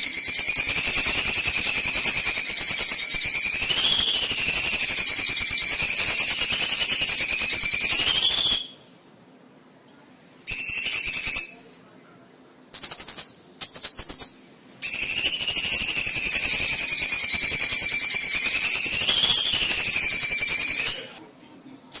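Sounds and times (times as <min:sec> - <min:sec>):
bird singing whistled phrases: 0:00.0 - 0:09.0, 0:12.8 - 0:21.2.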